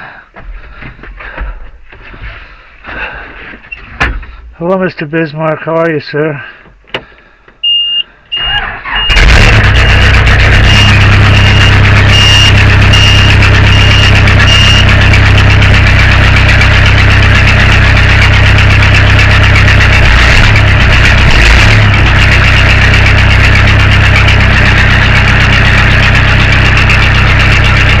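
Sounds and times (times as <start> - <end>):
high-pitched beep: 7.6 - 14.9
backhoe engine cranking: 8.3 - 28.0
backhoe engine running loudly: 8.8 - 28.0.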